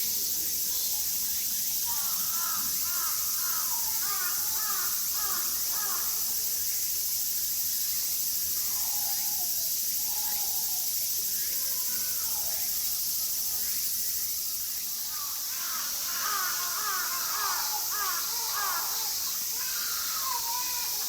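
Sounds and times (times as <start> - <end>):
steady high hiss: 0.0 - 21.0
birds calling: 15.2 - 21.0.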